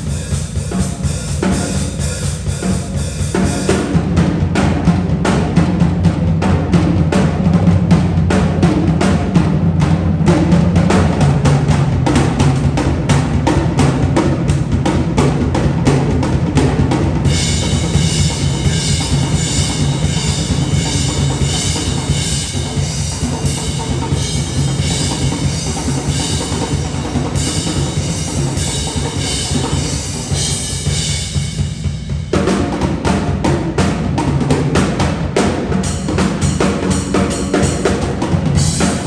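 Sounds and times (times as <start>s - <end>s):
kick and snare drum beat: 0.0s - 39.0s
held bass line: 15.7s - 31.8s.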